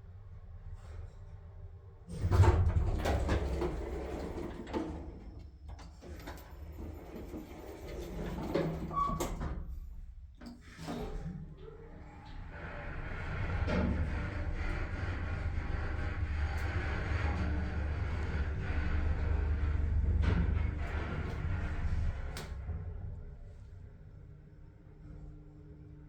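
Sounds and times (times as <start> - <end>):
elevator low rumble: 2.1 - 5.5, 11.5 - 26.0
elevator scraping creaks and knocks: 12.0 - 23.0.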